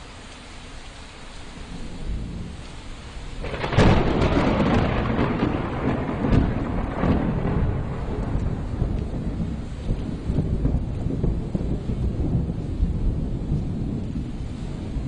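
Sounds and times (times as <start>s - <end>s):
steady rain falling: 0.0s - 15.0s
thunder rumbling and cracking: 1.7s - 15.0s.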